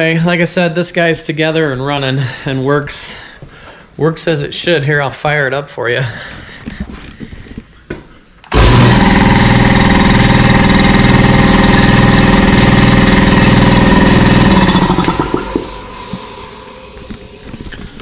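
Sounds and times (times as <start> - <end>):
air compressor running: 8.5 - 18.0.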